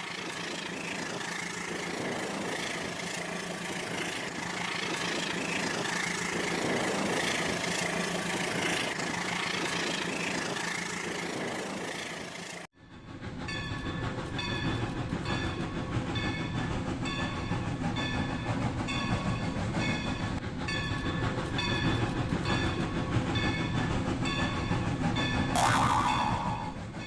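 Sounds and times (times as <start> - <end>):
toy train motor rumble: 0.0 - 12.6
short electronic tone: 25.6 - 26.8.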